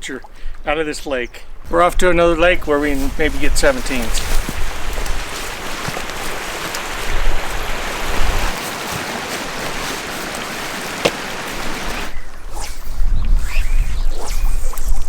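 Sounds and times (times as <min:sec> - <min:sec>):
water rushing: 0:03.1 - 0:12.5.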